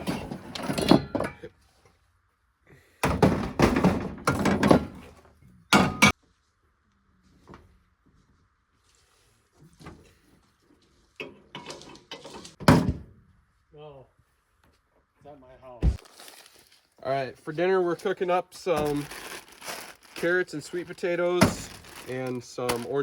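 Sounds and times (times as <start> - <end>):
pots and pans clattering: 0.0 - 1.5, 5.7 - 6.2.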